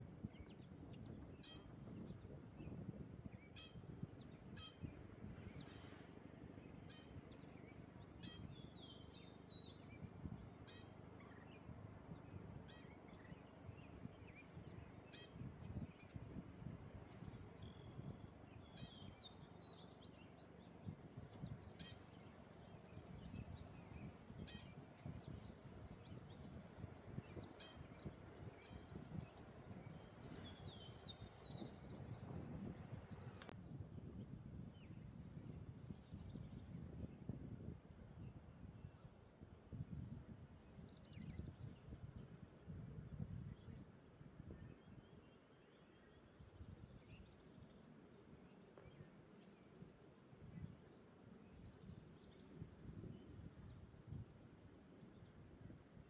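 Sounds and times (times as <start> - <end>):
wind rumble on microphone: 0.0 - 56.0
small birds chirping: 17.1 - 33.8.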